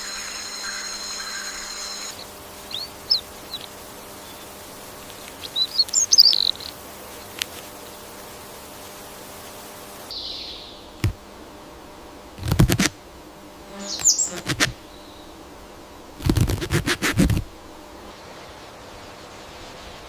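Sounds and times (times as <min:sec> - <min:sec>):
scratchy rustling crackle: 0:00.0 - 0:10.1, 0:12.4 - 0:12.9, 0:16.2 - 0:20.0
faint outdoor hiss: 0:00.0 - 0:20.0.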